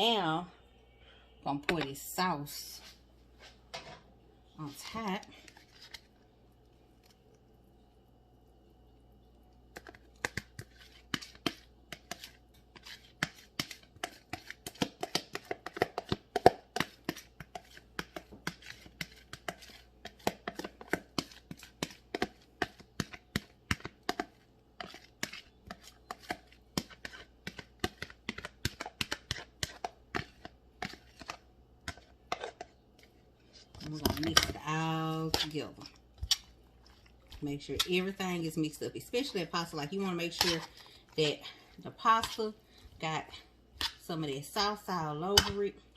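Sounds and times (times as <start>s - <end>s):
spoon scraping a dish: 9.8s - 38.2s, 39.2s - 44.0s.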